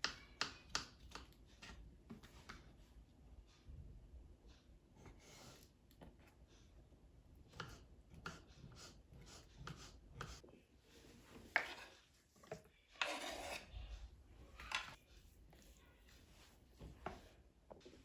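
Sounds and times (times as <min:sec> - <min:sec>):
kitchen scraping and rubbing: 0:07.5 - 0:17.4.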